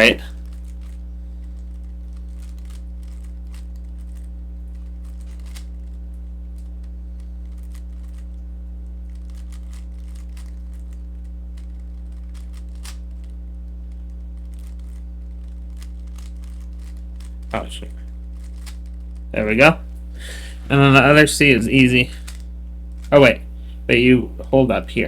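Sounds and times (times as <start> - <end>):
low electrical hum: 0.0 - 25.0
puzzle cube clicking: 1.6 - 6.0, 9.1 - 11.0, 11.6 - 13.3, 14.4 - 17.8, 18.4 - 18.8.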